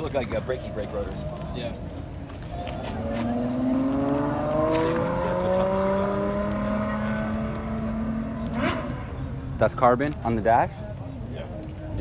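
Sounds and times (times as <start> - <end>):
car engine accelerating: 2.8 - 9.5.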